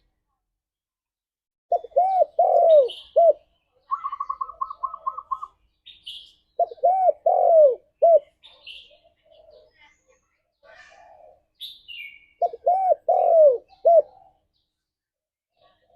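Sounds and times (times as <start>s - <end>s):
dove cooing: 1.7s - 5.6s, 6.6s - 8.4s, 12.4s - 14.4s.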